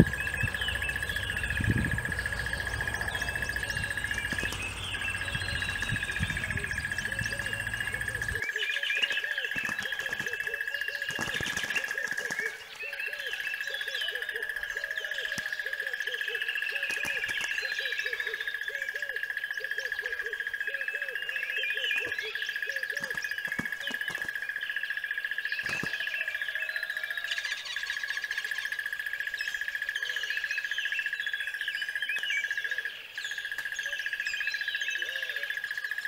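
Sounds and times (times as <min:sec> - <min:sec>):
high-pitched whine: 0:00.0 - 0:08.4
birds chirping: 0:00.0 - 0:20.2, 0:21.1 - 0:35.6
low repeated bird call: 0:00.0 - 0:36.0.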